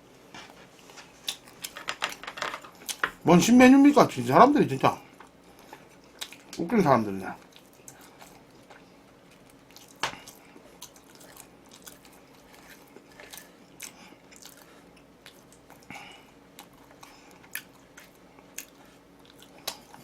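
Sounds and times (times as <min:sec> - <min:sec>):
chewing food: 0:05.2 - 0:06.6, 0:07.4 - 0:20.0.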